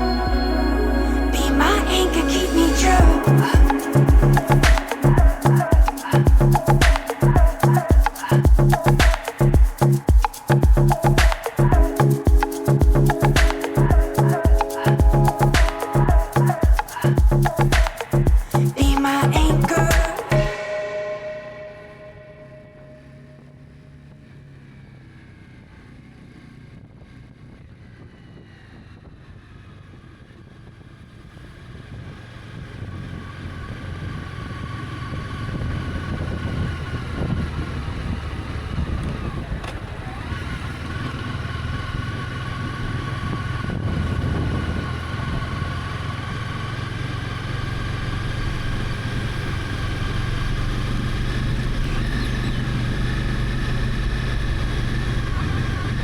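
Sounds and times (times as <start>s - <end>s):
road noise: 0.0s - 56.0s
motorcycle engine running: 23.4s - 56.0s
wind noise: 35.1s - 41.0s, 42.6s - 45.7s.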